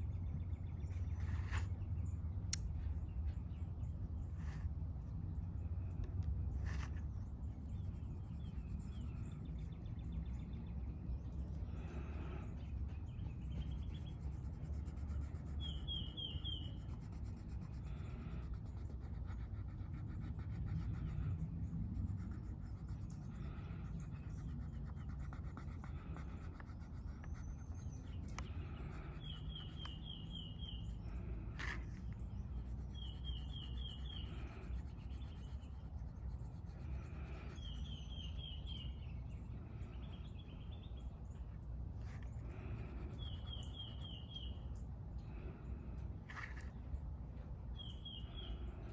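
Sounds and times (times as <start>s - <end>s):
low outdoor rumble: 0.0s - 48.9s
colouring scratching on paper: 6.5s - 10.2s, 13.1s - 38.1s, 41.9s - 44.2s
bird chirping: 6.8s - 17.4s, 27.1s - 31.2s, 32.2s - 35.9s, 36.9s - 44.9s, 47.7s - 48.9s.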